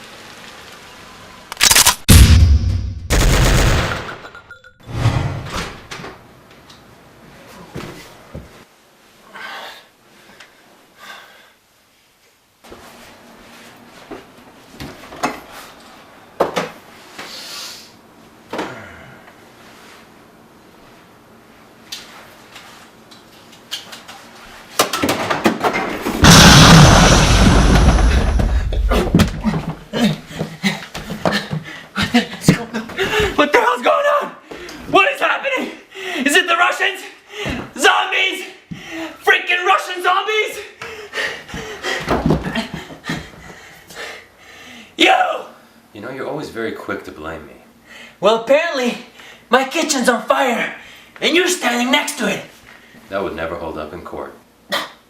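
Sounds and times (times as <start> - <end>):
loud sudden boom: 2.1 - 4.2, 26.2 - 29.3.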